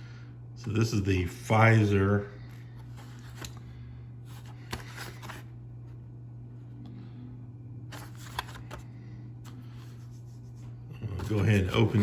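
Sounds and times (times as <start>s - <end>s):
steady low hum: 0.0s - 12.0s
plastic and cardboard rustling: 7.9s - 8.9s, 11.0s - 12.0s.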